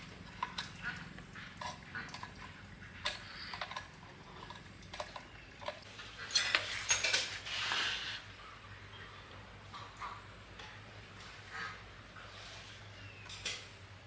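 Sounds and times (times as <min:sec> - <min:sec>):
metal parts and tools clinking: 0:03.0 - 0:07.7.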